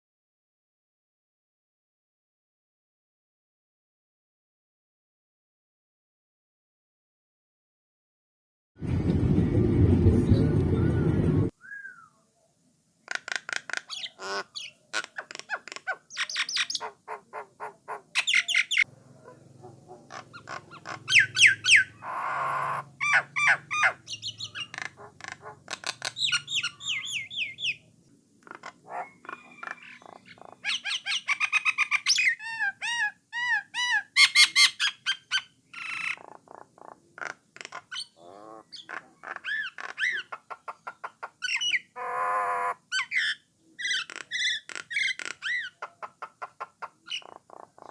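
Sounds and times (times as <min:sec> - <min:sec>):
starling singing: 0:13.1 - 0:27.9, 0:28.5 - 0:37.0, 0:37.7 - 0:47.9.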